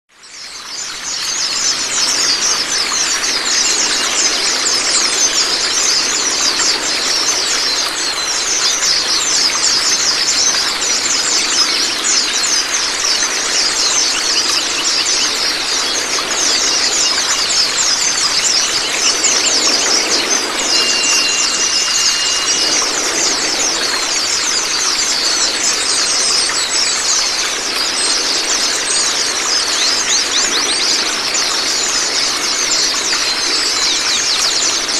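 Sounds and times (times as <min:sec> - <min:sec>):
small songbirds twittering: 0:00.2 - 0:34.9
running splashing water: 0:00.7 - 0:34.9
steady whistle: 0:17.6 - 0:25.7.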